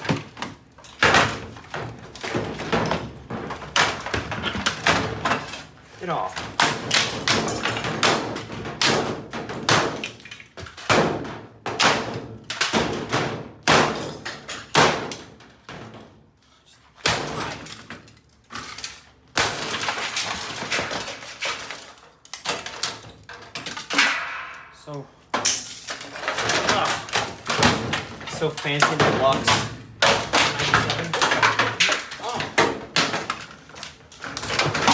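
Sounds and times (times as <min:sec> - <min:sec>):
metal clattering: 0:19.8 - 0:34.9
glass shattering: 0:25.4 - 0:34.9.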